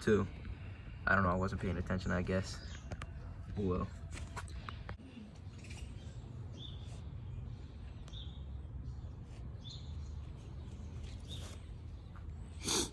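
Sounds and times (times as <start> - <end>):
bird chirping: 5.5 - 12.8.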